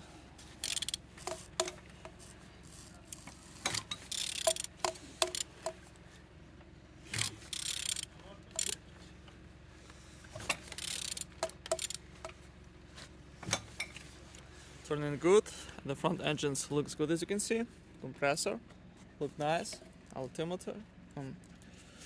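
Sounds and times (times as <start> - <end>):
engine turning over by hand: 0.5 - 5.9, 7.1 - 9.0, 10.3 - 12.4
wrench clicks and scrapes: 0.6 - 5.8, 7.1 - 8.8, 10.5 - 12.4.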